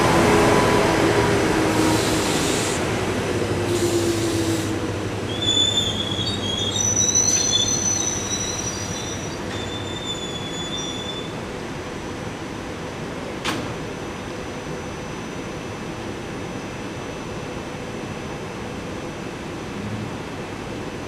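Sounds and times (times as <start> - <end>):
railcar blowers humming: 0.0 - 14.8.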